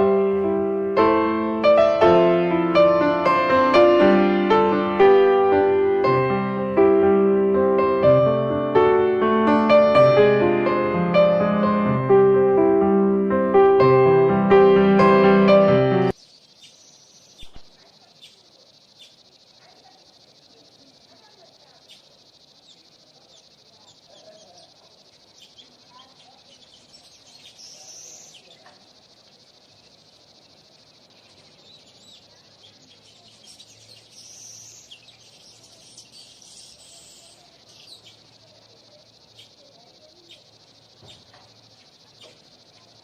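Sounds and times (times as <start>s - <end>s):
high-pitched insect chorus: 0.0s - 12.3s, 14.8s - 43.0s
bird chirps: 15.0s - 43.0s.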